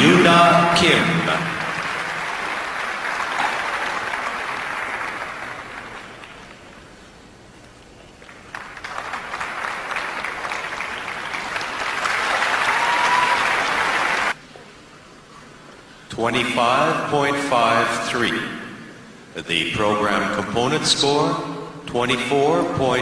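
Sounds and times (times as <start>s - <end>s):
crowd applauding: 0.8s - 6.9s, 8.1s - 14.4s.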